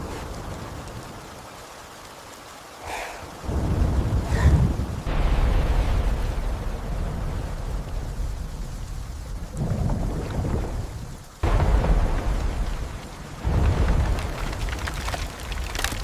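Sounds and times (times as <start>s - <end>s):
steady rain: 0.0s - 16.0s
rolling thunder: 3.4s - 16.0s
loud thunder crack: 3.5s - 8.3s, 11.4s - 14.6s.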